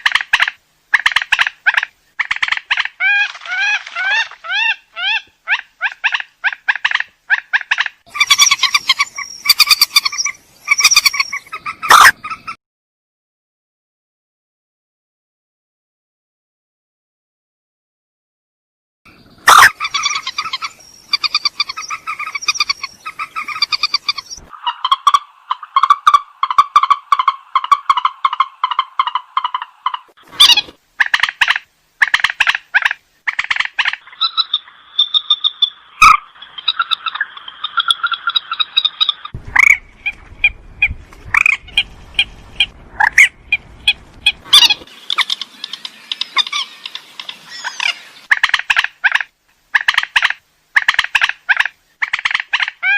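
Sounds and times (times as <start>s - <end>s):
bird rattling calls: 0.0s - 7.0s, 7.6s - 12.2s, 19.5s - 49.2s.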